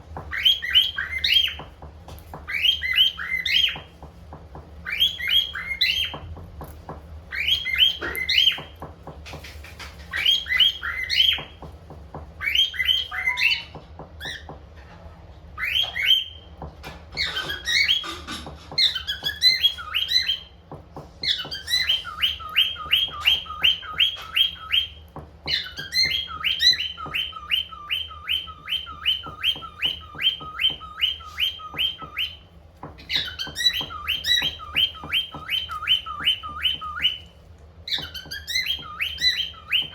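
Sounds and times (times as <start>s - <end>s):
cockatiel whistling: 0.3s - 1.7s, 2.4s - 3.9s, 4.8s - 6.3s, 7.3s - 8.8s, 10.1s - 11.6s, 12.4s - 14.5s, 15.6s - 16.5s, 17.2s - 20.6s, 21.2s - 39.9s.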